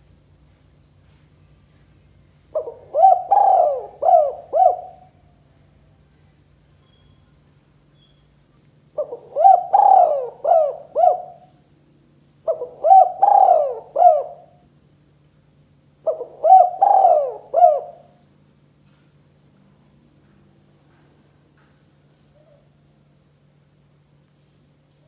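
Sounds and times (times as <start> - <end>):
dove cooing: 2.6 - 5.2, 9.0 - 11.5, 12.4 - 14.6, 16.0 - 18.2.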